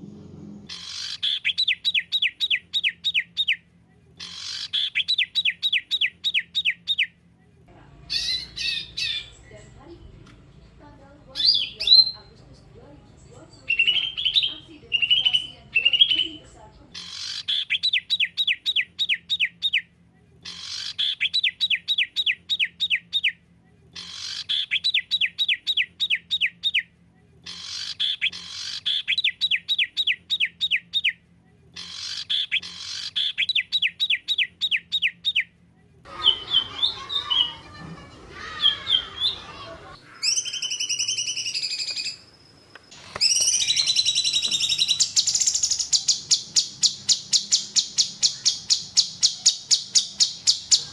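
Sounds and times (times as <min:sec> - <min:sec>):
faint low hum: 0:00.0 - 0:00.8, 0:07.2 - 0:17.0
shrill rapid bird trill: 0:00.7 - 0:03.6, 0:04.2 - 0:07.1, 0:08.0 - 0:19.8, 0:20.5 - 0:23.3, 0:24.0 - 0:26.8, 0:27.5 - 0:31.1, 0:31.8 - 0:35.4, 0:36.1 - 0:42.4, 0:43.0 - 0:50.9
bird chattering calls: 0:07.9 - 0:18.0, 0:36.1 - 0:42.1, 0:43.2 - 0:50.9
songbird whistling down-sweeping notes: 0:40.2 - 0:49.1.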